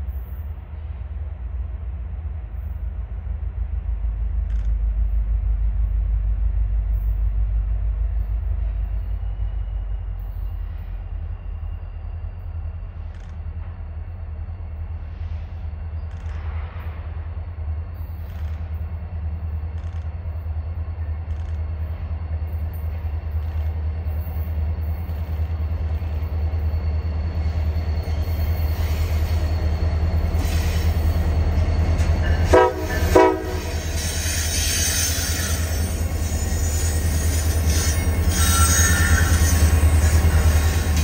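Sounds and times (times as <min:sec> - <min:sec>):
locomotive engine rumble: 0:00.0 - 0:41.0
wheels hissing on rails: 0:04.5 - 0:41.0
train horn blasts: 0:32.3 - 0:34.0
faint wheel squeal: 0:33.8 - 0:41.0.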